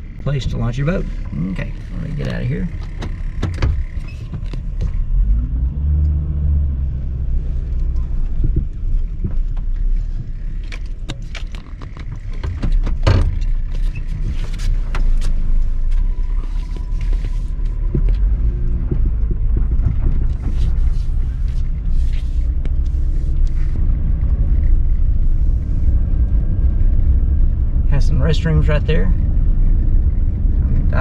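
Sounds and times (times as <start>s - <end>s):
truck engine and road rumble: 0.0s - 31.0s
clicks and rattles in cab: 1.2s - 5.0s, 7.9s - 23.6s.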